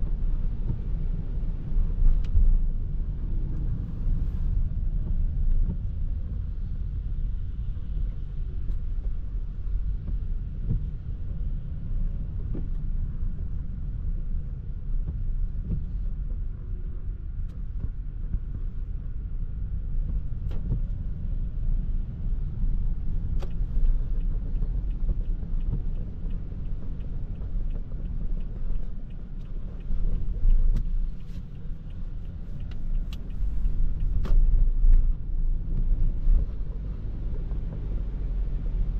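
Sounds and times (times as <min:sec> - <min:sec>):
light ticks: 0:00.0 - 0:02.7, 0:08.0 - 0:11.5, 0:17.4 - 0:38.8
tyres rumbling on wet road: 0:00.0 - 0:38.9.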